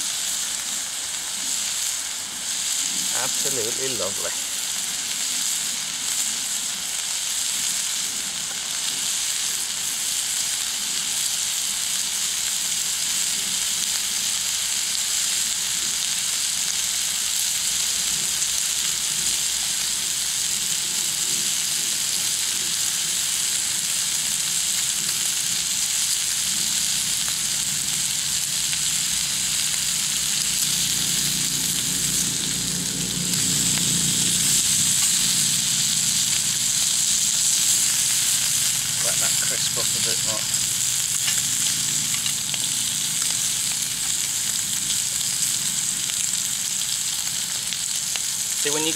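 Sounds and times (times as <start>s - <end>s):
bacon sizzling in a pan: 0.0s - 48.9s
low rumble: 29.1s - 39.0s.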